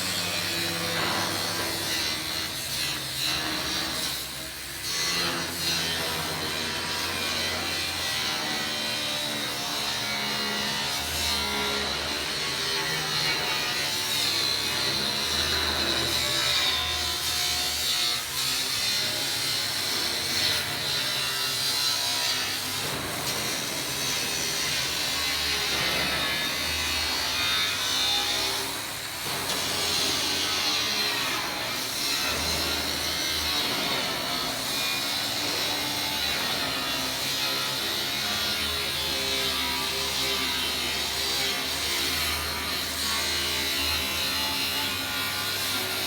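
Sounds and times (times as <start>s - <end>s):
power tool cutting steel: 0.0s - 46.0s.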